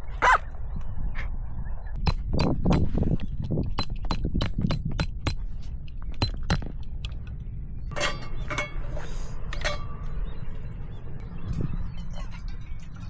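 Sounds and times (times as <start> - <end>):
ringing clinks of tableware: 7.9 - 10.0.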